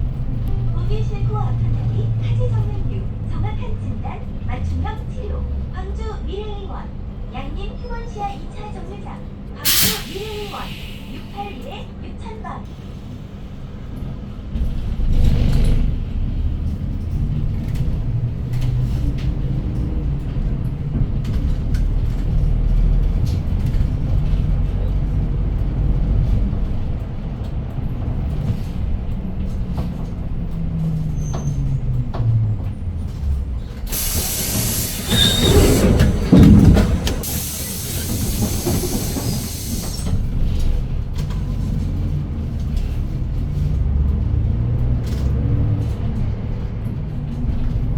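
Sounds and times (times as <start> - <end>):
bus engine rumbling: 0.0 - 47.9
loud air hiss: 9.6 - 11.6, 33.9 - 40.1.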